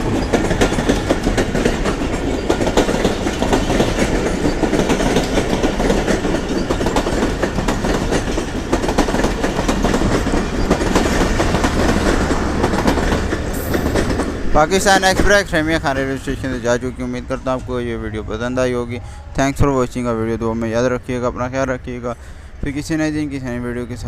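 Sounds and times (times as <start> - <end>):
train wheels clattering over rail joints: 0.0 - 18.3.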